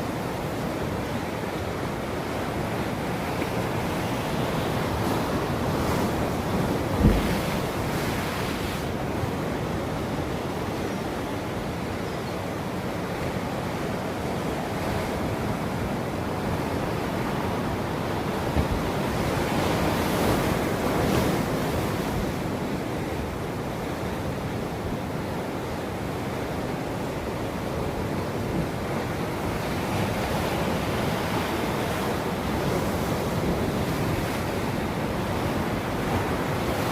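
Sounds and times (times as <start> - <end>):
waves washing onto shore: 0.0 - 36.9
wind noise on microphone: 3.8 - 9.1.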